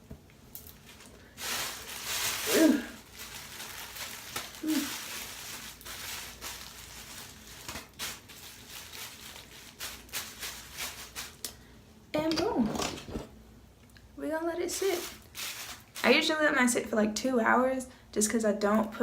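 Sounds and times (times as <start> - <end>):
fabric rustling and handling: 0.7 - 11.4, 14.7 - 16.3.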